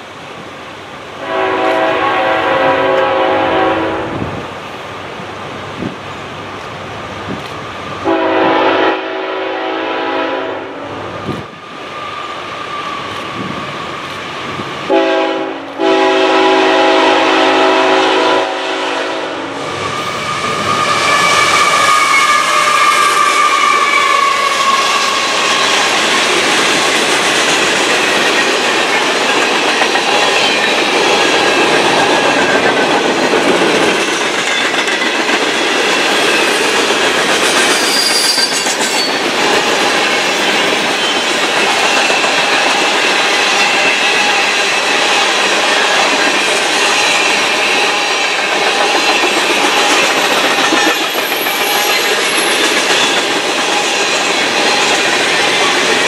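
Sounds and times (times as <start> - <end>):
train passing rolling rush: 0.0 - 56.0
train horn chord: 1.2 - 4.2, 8.1 - 10.8, 14.9 - 19.6
wheel squeal: 19.7 - 25.9, 37.6 - 39.3.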